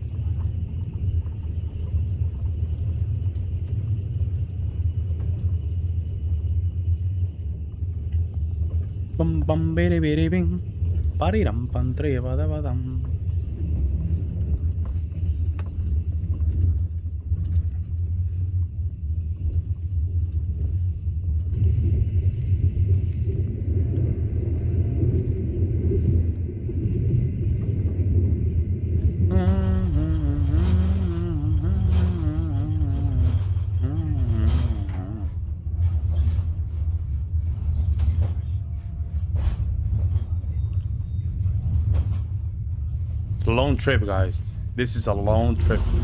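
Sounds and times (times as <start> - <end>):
low rumble: 0.0 - 46.0
person humming: 29.3 - 35.4.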